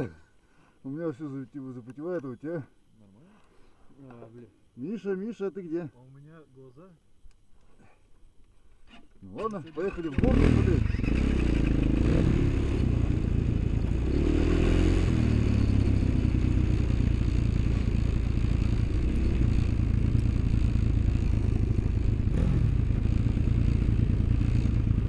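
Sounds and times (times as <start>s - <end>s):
vehicle engine running: 10.2s - 25.0s.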